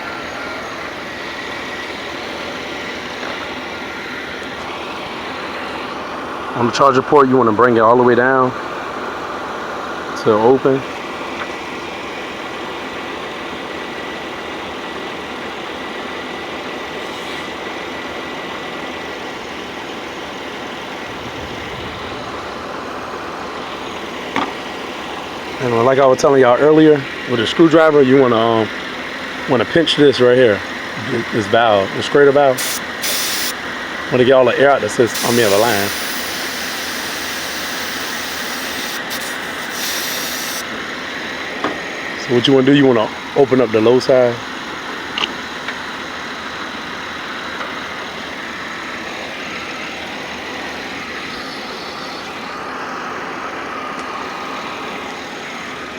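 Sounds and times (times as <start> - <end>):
faint steady whine: 0.0 - 55.9
refrigerant hissing from valve: 30.6 - 41.4.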